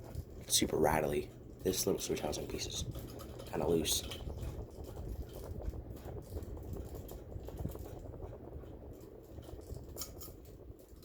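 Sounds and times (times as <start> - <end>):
ceiling fan humming: 0.0 - 11.0.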